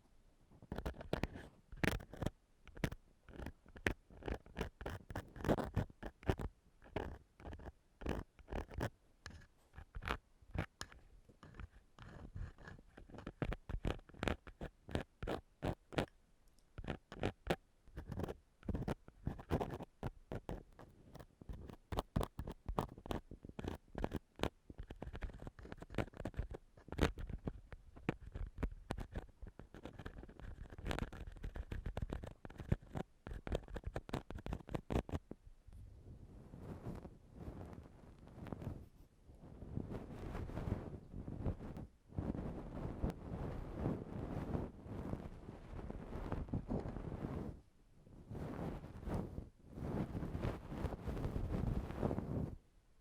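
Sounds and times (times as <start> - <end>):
ear-cleaning tool scraping microphone: 0.7 - 16.1, 16.8 - 35.2, 36.5 - 39.0, 39.7 - 47.6, 48.3 - 52.6.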